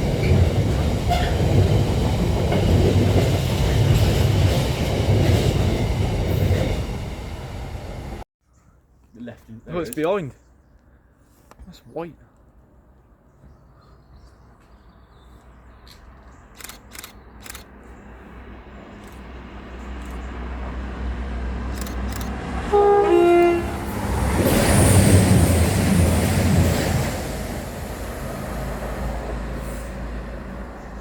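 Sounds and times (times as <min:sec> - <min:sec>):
train running noise: 0:00.0 - 0:08.2, 0:18.8 - 0:31.0
wheel and rail rush: 0:00.0 - 0:08.2, 0:15.8 - 0:31.0
two-tone train horn: 0:01.1 - 0:01.5, 0:22.6 - 0:24.0.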